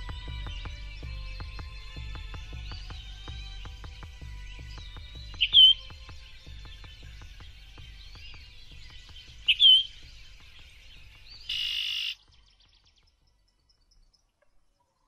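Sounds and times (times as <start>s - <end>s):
birds chirping: 0.0s - 15.0s
harsh bird call: 5.4s - 5.8s, 11.4s - 12.2s.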